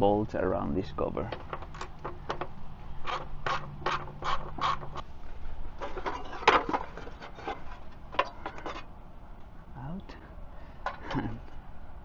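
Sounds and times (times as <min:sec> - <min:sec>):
tools and bolts clattering: 0:05.8 - 0:08.9.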